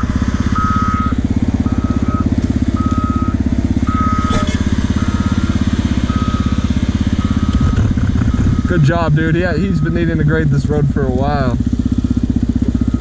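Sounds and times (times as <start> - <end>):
motorcycle engine running: 0.0 - 13.0
backup alarm beeping: 0.5 - 10.3, 12.7 - 13.0.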